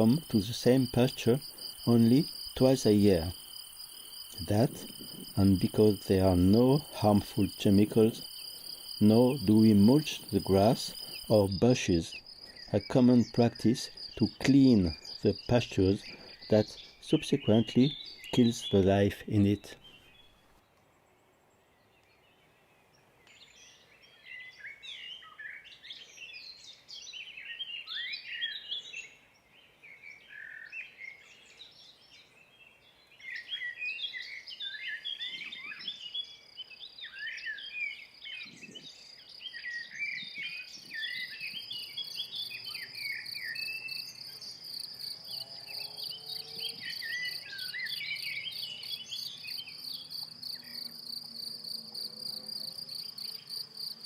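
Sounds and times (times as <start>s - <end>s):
high pulsing insect trill: 0.0s - 16.5s, 41.0s - 54.0s
crickets and grasshoppers singing: 0.0s - 19.1s, 37.5s - 54.0s
small birds chirping: 0.0s - 54.0s.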